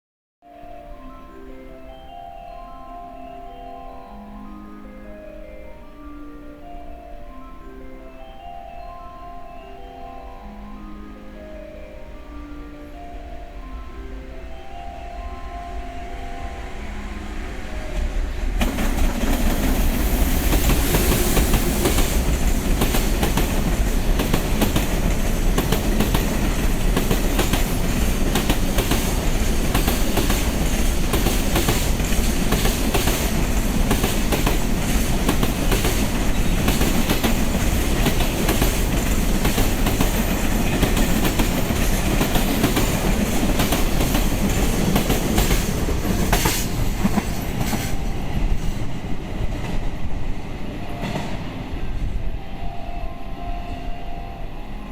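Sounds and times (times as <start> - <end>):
train wheels clattering: 16.1 - 52.1.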